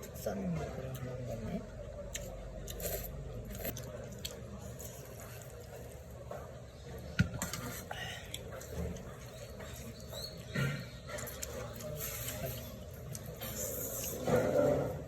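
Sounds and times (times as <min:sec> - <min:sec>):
slurping and chewing noodles: 0:02.1 - 0:06.2, 0:07.5 - 0:15.0.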